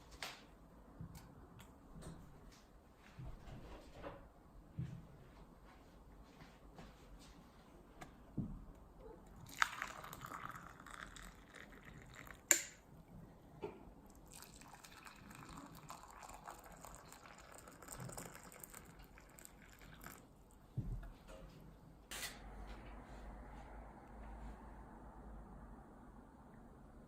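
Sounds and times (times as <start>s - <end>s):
liquid pouring: 9.4s - 12.9s, 14.0s - 20.5s.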